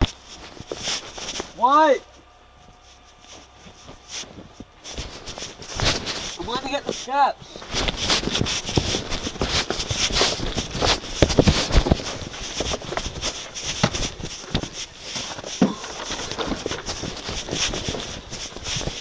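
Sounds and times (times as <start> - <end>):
knocks and crunches: 2.7 - 19.0
shovel scraping snow: 3.4 - 19.0.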